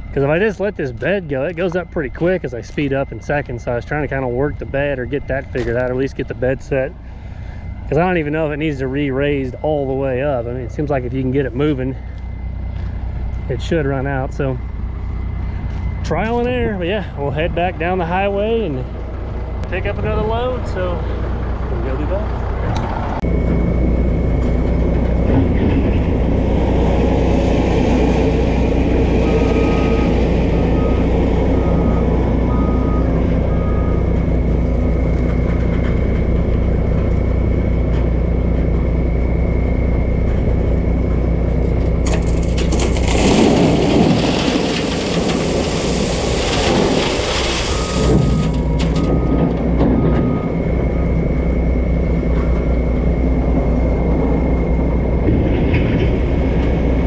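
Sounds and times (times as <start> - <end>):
truck diesel engine running: 0.0 - 57.0
short beeps: 47.6 - 51.4.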